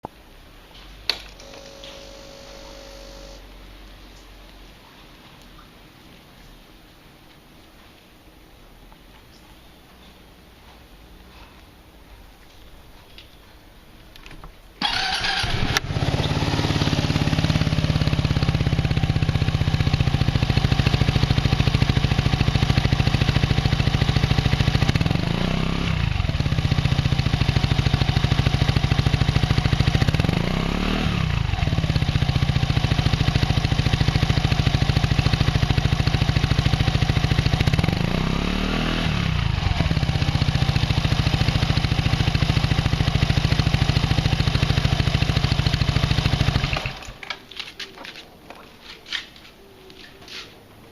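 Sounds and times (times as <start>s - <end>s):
scooter engine idling and revving: 14.8s - 47.2s.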